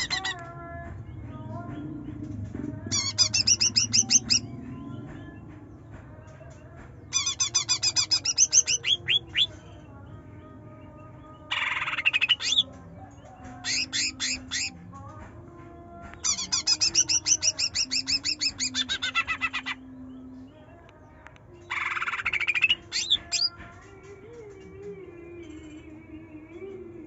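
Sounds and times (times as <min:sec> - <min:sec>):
bird singing sweeping chirps: 0:02.9 - 0:05.1, 0:07.2 - 0:09.7, 0:11.5 - 0:12.7, 0:16.2 - 0:20.6, 0:21.7 - 0:23.6.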